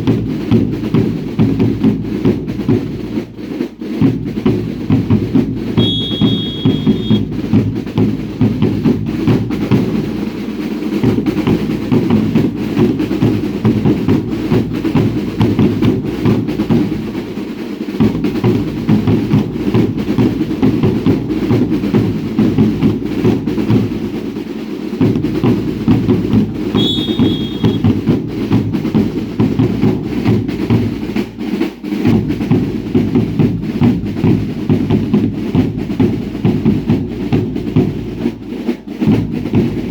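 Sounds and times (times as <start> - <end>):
drums beating steady rhythm: 0.0 - 39.9
shrill whistle blast: 5.8 - 7.3, 26.6 - 27.9.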